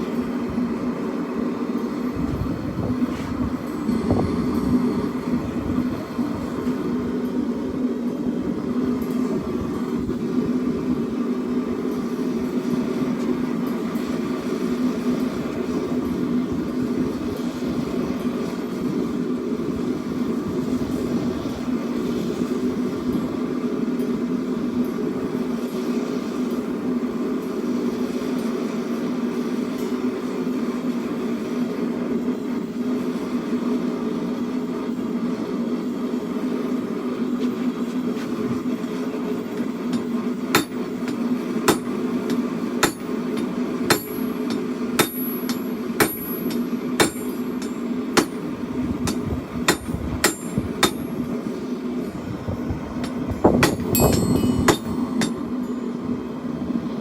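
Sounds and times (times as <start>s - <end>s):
forge burner humming: 0.0s - 57.0s
hammer ringing on anvil: 39.9s - 48.4s, 49.1s - 51.2s, 53.0s - 55.9s.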